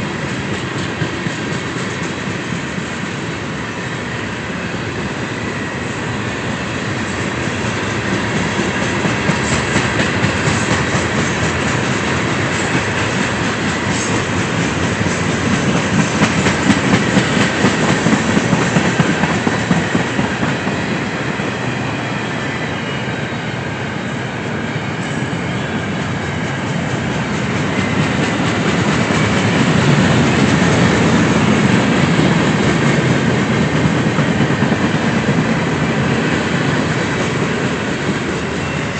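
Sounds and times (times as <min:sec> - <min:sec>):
train wheels clattering over rail joints: 0:00.0 - 0:03.0, 0:06.9 - 0:21.8, 0:26.4 - 0:38.8.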